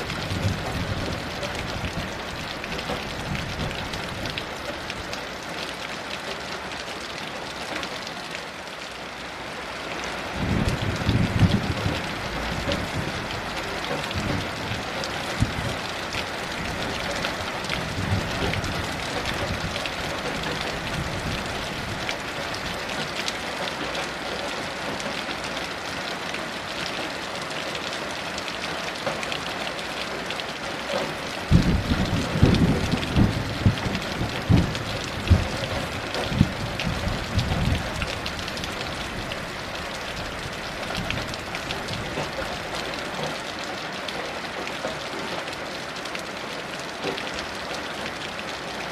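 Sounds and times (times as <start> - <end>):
heavy rain falling: 0.0 - 48.9
thunder rumbling: 10.4 - 15.8, 16.5 - 22.1, 31.5 - 42.3.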